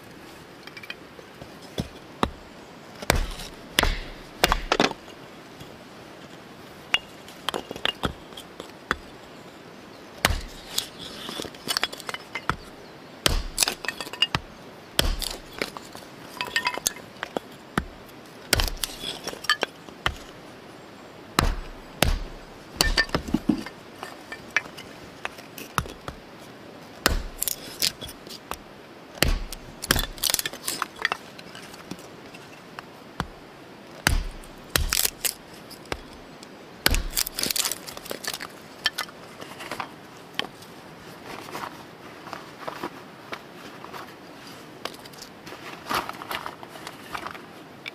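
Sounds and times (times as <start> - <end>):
light ringing clinks: 16.3 - 17.2.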